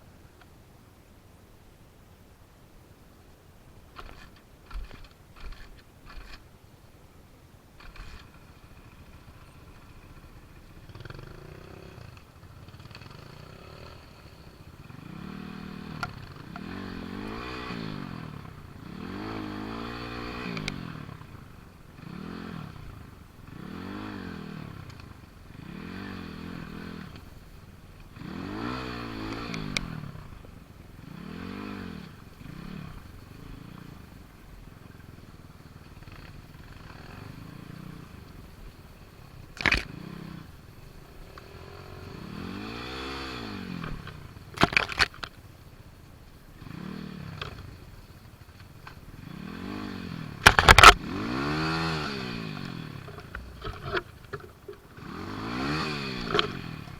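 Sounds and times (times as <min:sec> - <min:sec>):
small motorcycle engine revving: 0:04.0 - 0:06.4, 0:07.8 - 0:56.9
sharp clanks: 0:50.4 - 0:51.1.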